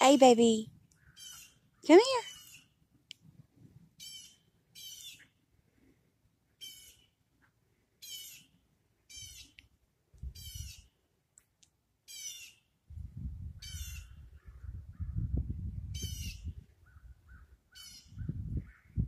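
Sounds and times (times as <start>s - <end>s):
bird harsh calls: 1.0s - 2.8s, 4.0s - 5.3s, 6.6s - 7.2s, 8.0s - 9.6s, 10.4s - 10.9s, 12.1s - 12.7s, 13.6s - 15.2s, 16.0s - 19.0s
low rumbles of wind: 8.6s - 11.2s, 12.7s - 19.0s.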